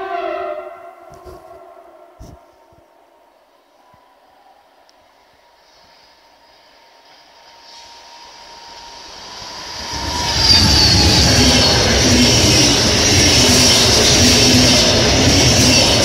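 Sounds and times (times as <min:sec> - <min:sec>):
electric locomotive whine: 0:00.0 - 0:16.0
train wheels rumbling on rails: 0:05.6 - 0:16.0.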